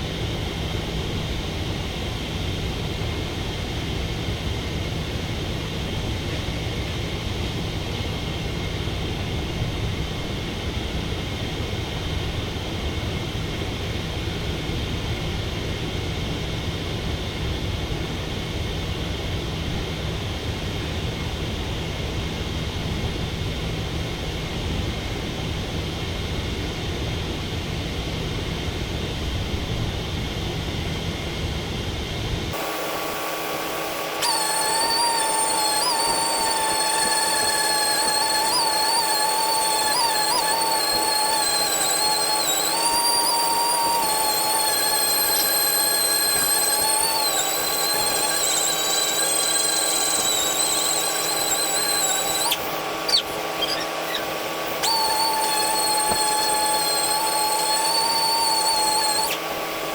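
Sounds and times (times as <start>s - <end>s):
power sander whine: 32.5s - 59.9s.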